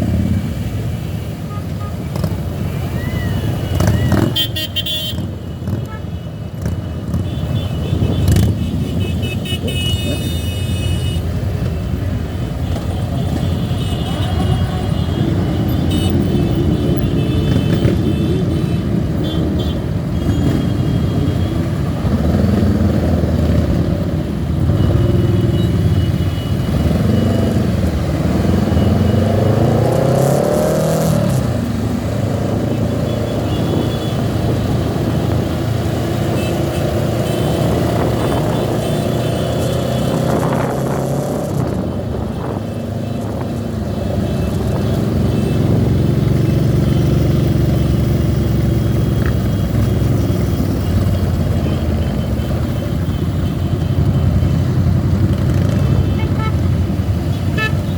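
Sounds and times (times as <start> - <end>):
motorcycle engines revving: 0.0 - 57.9
horns honking: 1.1 - 23.8, 24.4 - 31.3, 32.4 - 57.9.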